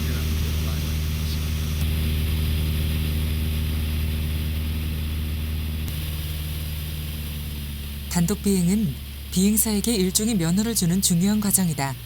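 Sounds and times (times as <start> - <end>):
propeller engine droning: 0.0 - 6.8.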